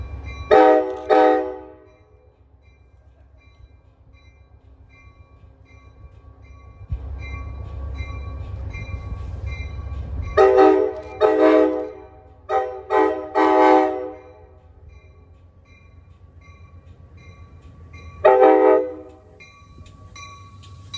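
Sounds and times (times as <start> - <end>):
low rumble of approaching train: 0.0 - 20.9
train horn blasts: 0.5 - 1.9, 10.4 - 14.6, 18.2 - 19.2.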